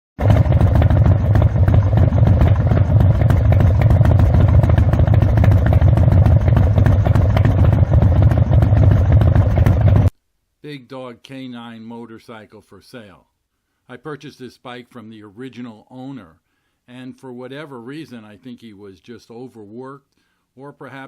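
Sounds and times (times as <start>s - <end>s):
motorcycle engine running: 0.2s - 10.1s.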